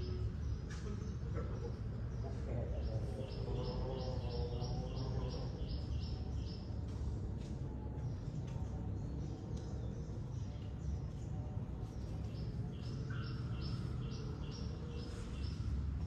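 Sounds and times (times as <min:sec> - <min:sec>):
bird chirping: 0:12.2 - 0:15.7.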